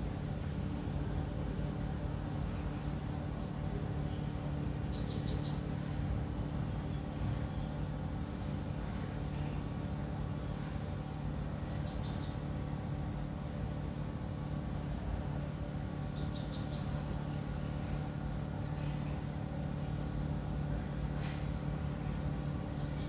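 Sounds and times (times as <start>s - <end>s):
steady low hum: 0.0s - 23.0s
bird chirping trill: 4.1s - 5.8s, 11.6s - 12.5s, 16.1s - 17.1s, 22.7s - 23.0s.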